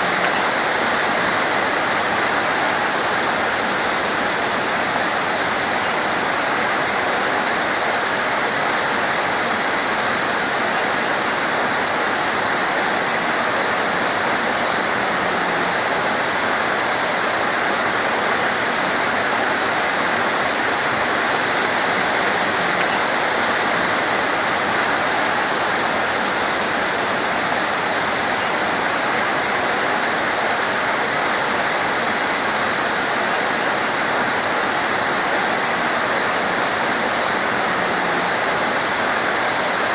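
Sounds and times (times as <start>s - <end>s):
torrential rain pouring: 0.0s - 39.9s.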